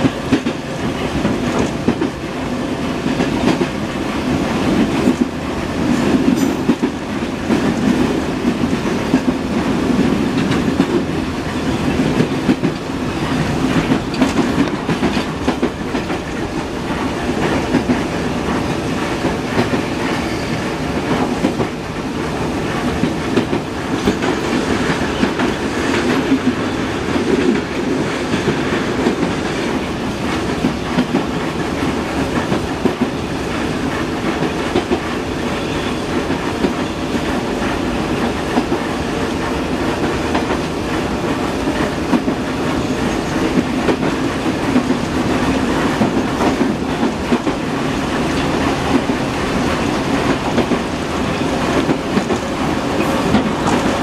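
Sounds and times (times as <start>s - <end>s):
train wheels rumbling on rails: 0.0s - 54.0s
short rail clacks: 36.0s - 54.0s.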